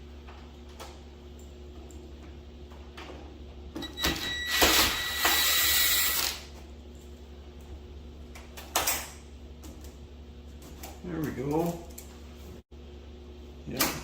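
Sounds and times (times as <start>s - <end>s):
cordless drill whining: 4.5s - 6.4s.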